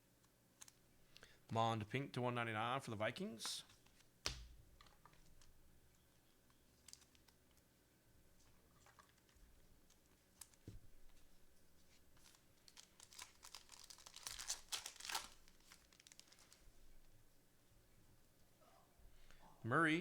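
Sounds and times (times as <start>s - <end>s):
foil wrapper being ripped open: 12.2s - 16.6s.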